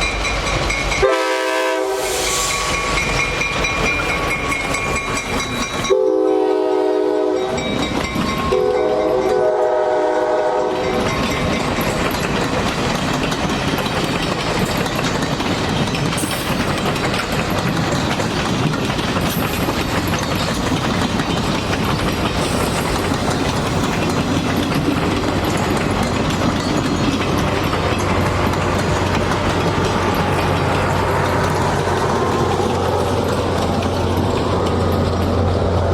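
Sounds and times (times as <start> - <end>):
train rolling past: 0.0 - 35.9
train horn blasts: 1.0 - 2.9, 5.9 - 7.7, 8.5 - 11.0
wheels clattering over rail joints: 2.9 - 5.9, 7.5 - 9.4, 10.7 - 35.9.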